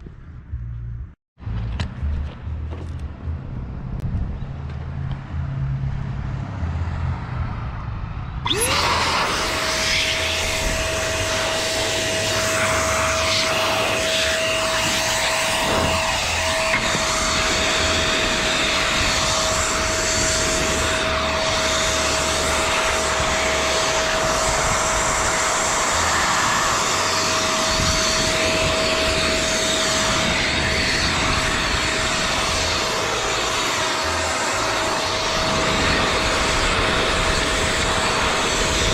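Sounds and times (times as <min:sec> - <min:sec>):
wind rumble on microphone: 0:00.0 - 0:38.9
blower motor whine: 0:08.4 - 0:38.9.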